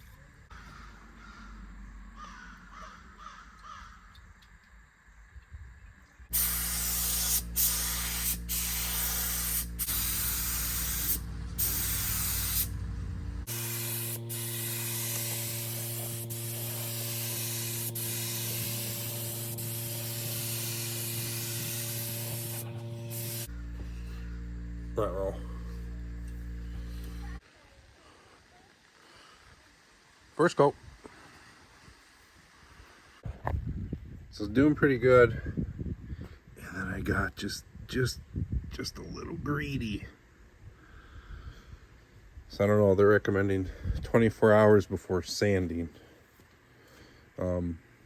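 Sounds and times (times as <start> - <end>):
paint spray gun hissing: 6.3 - 27.4
steady motor hum: 6.3 - 27.4.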